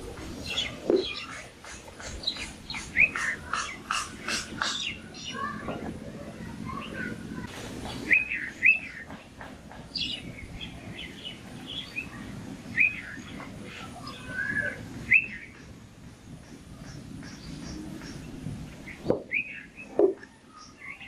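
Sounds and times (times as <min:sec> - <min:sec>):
birds chirping: 0:00.0 - 0:21.0
bird arched call notes: 0:00.5 - 0:05.1.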